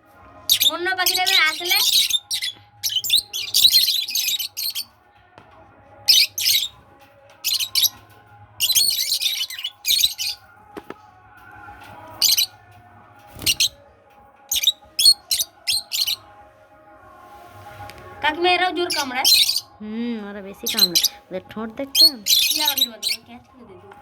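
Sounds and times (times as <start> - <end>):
lovebirds chirping and screeching: 0.5 - 4.9, 6.0 - 10.5, 12.1 - 12.7, 13.3 - 13.8, 14.5 - 16.3, 18.2 - 19.8, 20.5 - 23.6.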